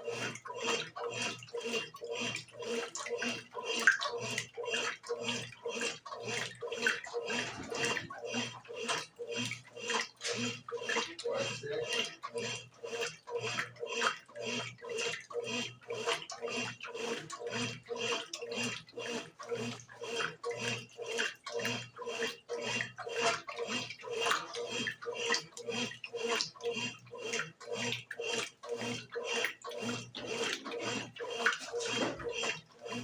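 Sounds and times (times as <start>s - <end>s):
washing machine motor hum: 0.0s - 33.0s
water sloshing in washing machine: 0.0s - 33.0s.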